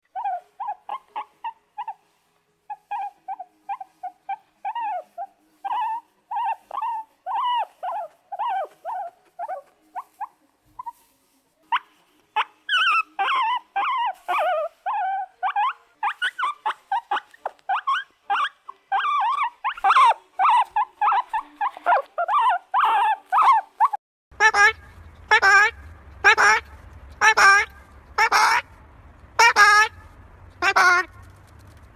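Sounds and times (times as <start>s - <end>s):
puppy whining and yelping: 0.1s - 11.0s, 11.7s - 24.0s.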